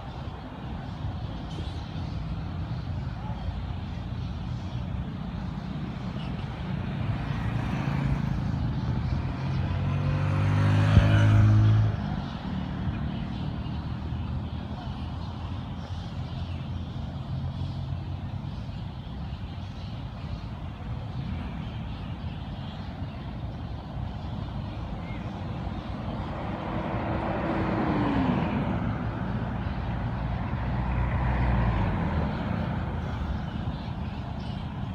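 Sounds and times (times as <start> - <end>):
loud vehicles passing: 0.0 - 34.9
vehicle engines running: 0.0 - 34.9.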